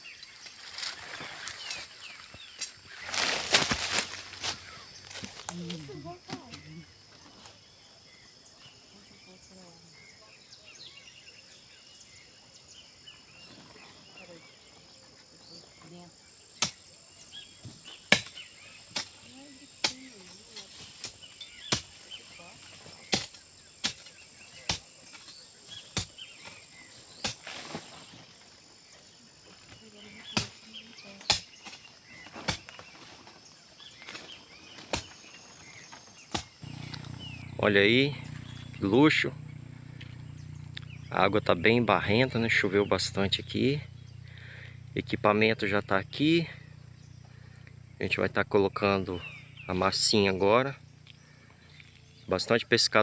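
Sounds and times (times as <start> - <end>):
high insect whine: 0.0 - 53.0
birds chirping: 1.2 - 27.5, 28.6 - 53.0
high-pitched insect drone: 36.6 - 52.3.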